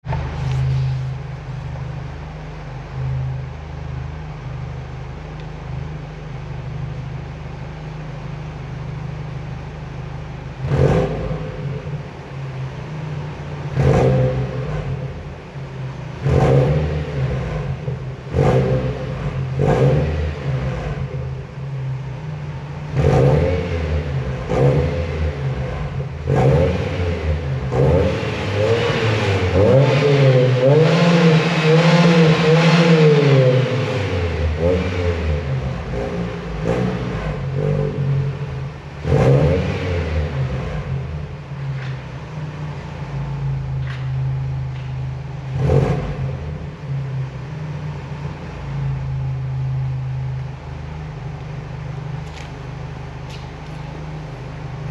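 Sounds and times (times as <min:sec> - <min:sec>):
car engine idling and revving: 0:00.0 - 0:54.9.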